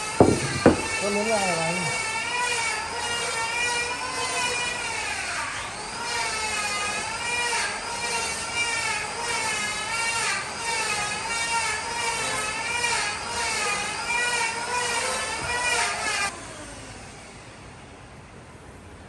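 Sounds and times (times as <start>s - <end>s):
power tool motor whine: 0.0s - 18.0s.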